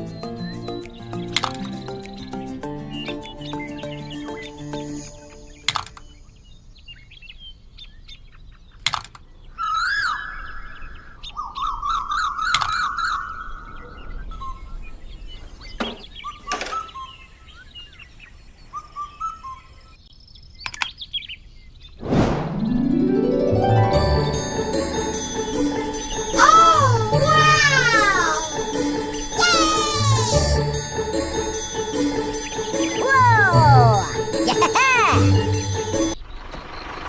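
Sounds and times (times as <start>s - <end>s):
bird chirps and trills: 0.0s - 22.0s, 22.6s - 36.4s
sharp clicks: 0.8s - 2.2s, 20.6s - 21.0s.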